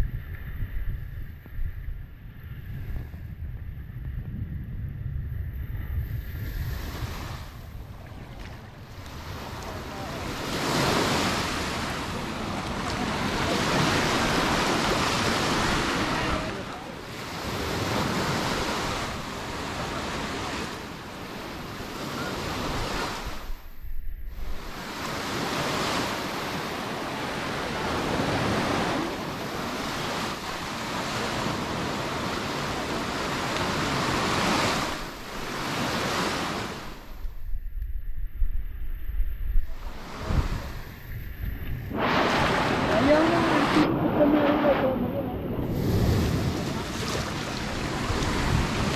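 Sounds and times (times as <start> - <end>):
wind buffeting microphone: 0.0 - 26.4, 27.3 - 48.9
sea waves breaking on beach: 6.1 - 37.4, 39.6 - 48.9.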